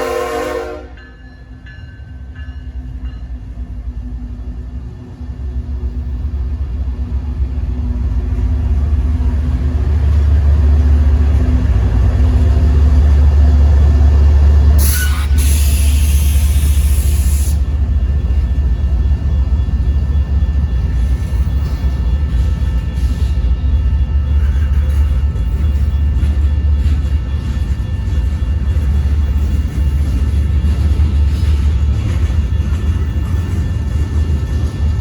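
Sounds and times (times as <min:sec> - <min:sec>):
diesel locomotive deep rumble: 0:00.0 - 0:35.0
loud hiss: 0:14.8 - 0:17.6.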